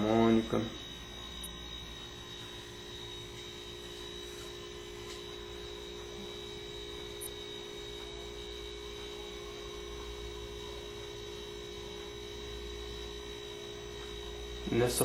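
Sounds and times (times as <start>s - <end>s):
electrical hum: 0.0s - 15.0s
faint constant high tone: 0.0s - 15.0s.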